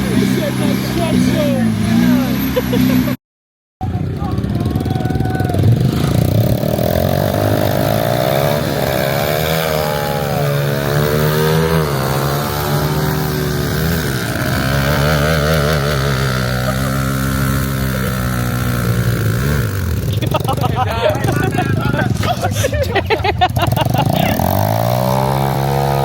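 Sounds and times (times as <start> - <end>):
diesel truck engine revving: 0.0 - 3.2, 3.8 - 26.0.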